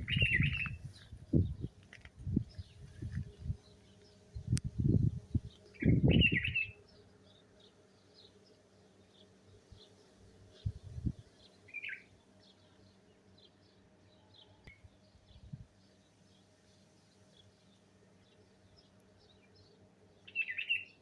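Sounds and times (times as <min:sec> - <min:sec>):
wind gusts on microphone: 0:00.0 - 0:03.7, 0:04.3 - 0:06.7, 0:10.6 - 0:11.3, 0:15.3 - 0:15.7
small birds chirping: 0:00.0 - 0:21.0.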